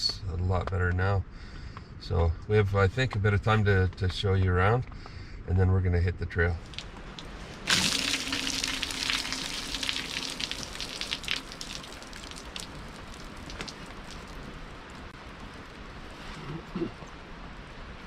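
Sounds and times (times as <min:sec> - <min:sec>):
distant waterfall rushing: 0:06.8 - 0:18.0.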